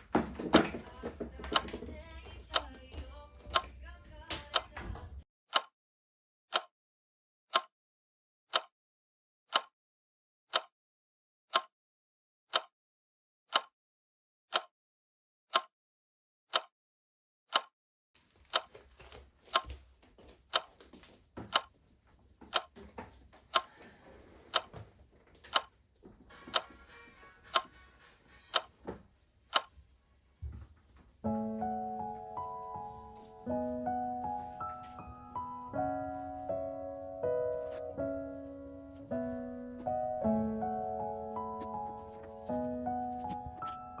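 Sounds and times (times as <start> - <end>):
clock ticking: 2.5 - 2.8, 4.4 - 4.8, 5.5 - 5.7, 6.5 - 6.7, 7.5 - 7.7, 8.5 - 8.7, 9.5 - 9.7, 10.5 - 10.7, 11.5 - 11.7, 12.5 - 12.7, 13.5 - 13.7, 14.5 - 14.7, 15.5 - 15.7, 16.5 - 16.7, 17.5 - 17.7, 18.5 - 18.8, 19.5 - 19.7, 20.5 - 20.8, 21.5 - 21.7, 22.5 - 22.8, 23.5 - 23.8, 24.5 - 24.8, 25.4 - 25.7, 26.4 - 26.8, 27.5 - 27.7, 28.5 - 28.7, 29.5 - 29.8.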